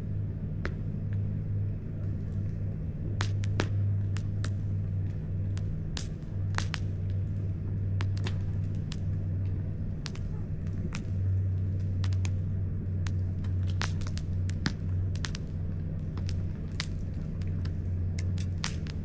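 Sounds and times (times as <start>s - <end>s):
campfire crackling: 0.0s - 19.0s
low rumble: 0.0s - 19.0s
fire pops and snaps: 0.5s - 19.0s.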